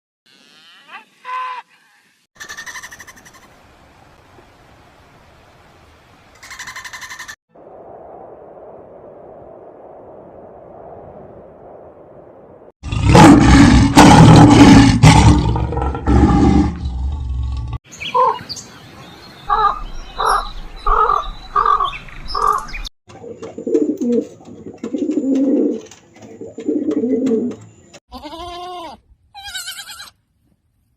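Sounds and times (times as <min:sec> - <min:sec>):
animal roaring: 0:12.8 - 0:17.8.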